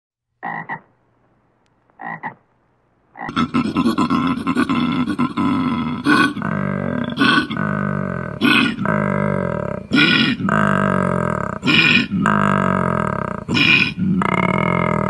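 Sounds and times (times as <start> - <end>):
koala grunts: 3.3 - 15.0.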